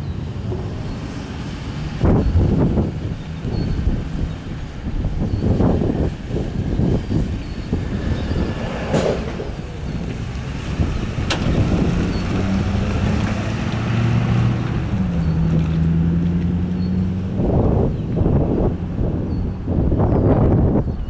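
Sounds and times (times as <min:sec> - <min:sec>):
jet engines rumbling: 0:00.0 - 0:20.5
airflow noise: 0:00.3 - 0:16.1.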